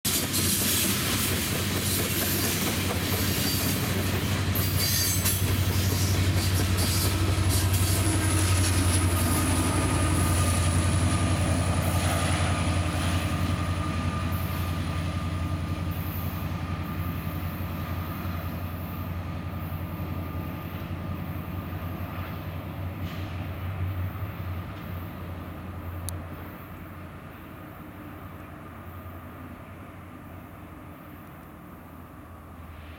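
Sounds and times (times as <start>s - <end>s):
wheels clicking over rail joints: 0.1s - 9.9s
diesel locomotive engine drone: 0.1s - 32.9s
freight train rolling past: 0.1s - 32.9s
high wheel squeal: 4.6s - 10.5s.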